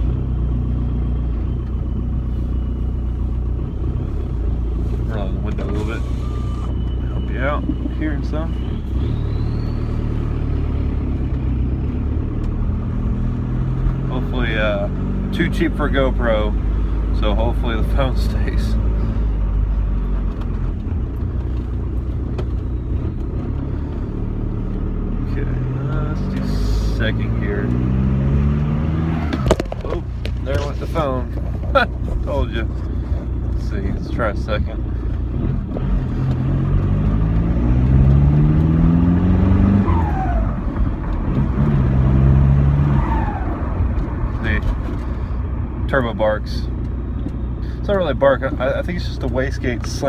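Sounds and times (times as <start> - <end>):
diesel engine deep rumble: 0.0 - 50.0
turbo falling whistle: 5.8 - 10.4.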